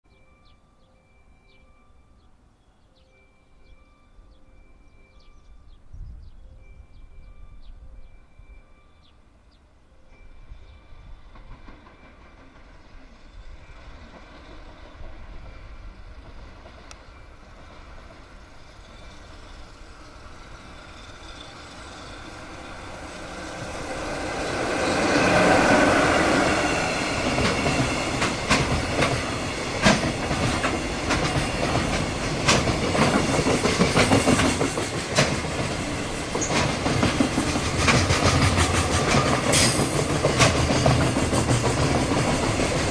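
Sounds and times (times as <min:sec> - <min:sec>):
freight train passing: 0:00.2 - 0:42.9
wheels clacking over rail joints: 0:14.0 - 0:42.9.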